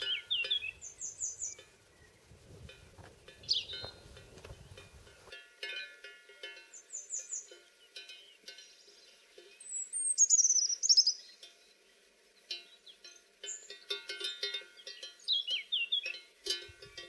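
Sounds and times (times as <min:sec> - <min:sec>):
songbird singing: 0:00.0 - 0:17.0
faint ringing bell-like tones: 0:02.7 - 0:10.0, 0:11.2 - 0:17.0.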